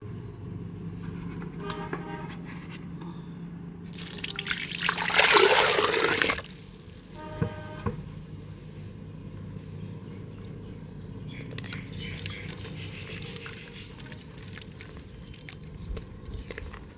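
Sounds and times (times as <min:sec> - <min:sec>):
mud crunching in a pot: 0:04.0 - 0:16.9.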